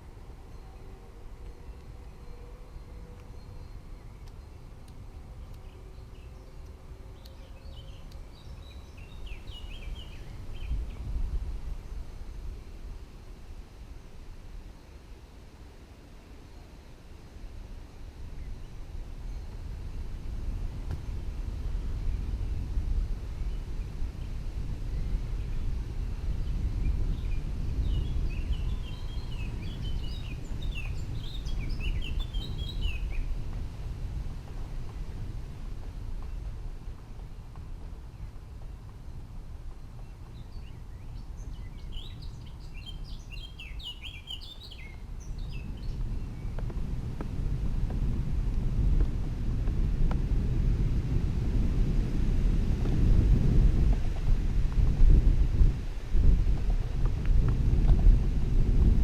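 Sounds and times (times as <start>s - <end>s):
bird chirping: 5.4s - 11.0s, 27.2s - 33.3s, 40.0s - 46.5s.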